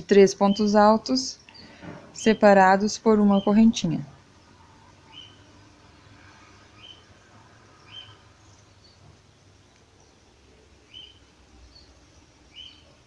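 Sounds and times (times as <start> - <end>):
low steady hum: 0.0 - 13.0
faint bird chirps: 4.4 - 9.0, 9.7 - 13.0.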